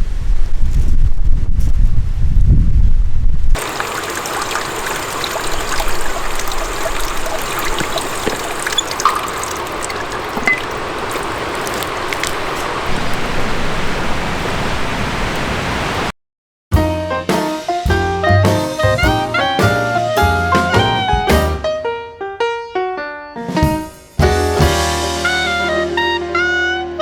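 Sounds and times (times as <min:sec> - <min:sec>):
water trickling and flowing: 0:03.6 - 0:16.0.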